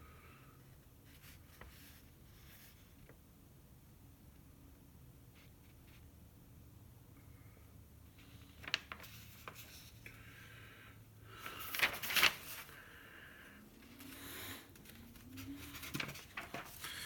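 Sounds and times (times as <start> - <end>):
rustling: 11.4 - 12.8, 13.8 - 17.0.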